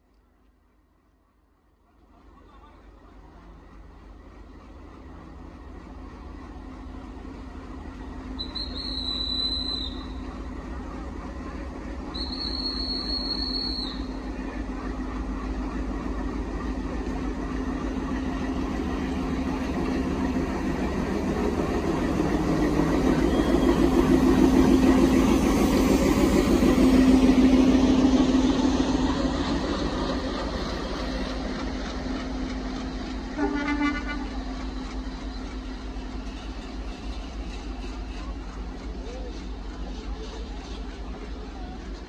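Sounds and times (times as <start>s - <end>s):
diesel locomotive engine drone: 0.0s - 42.0s
train coaches rolling by: 0.0s - 42.0s
high-pitched train whistle blasts: 8.4s - 10.2s, 12.2s - 14.1s.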